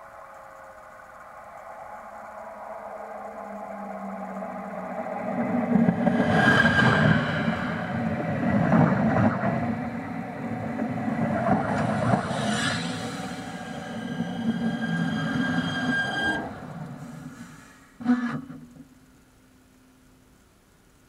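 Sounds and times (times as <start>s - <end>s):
train wheels rumbling on rails: 0.0s - 17.8s
high-pitched brake squeals: 11.8s - 18.4s.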